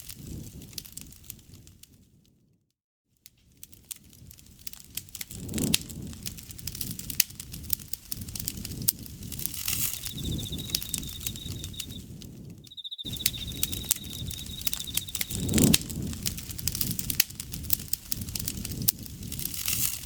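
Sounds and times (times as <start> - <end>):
wood fire crackling and popping: 3.6 - 12.5, 13.1 - 20.0
pulsing insect trill: 9.8 - 12.0, 12.7 - 15.7.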